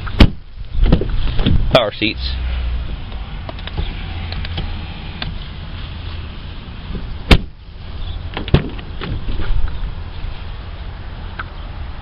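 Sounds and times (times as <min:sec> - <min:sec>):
truck door shutting: 0:06.9 - 0:07.6, 0:08.3 - 0:09.7.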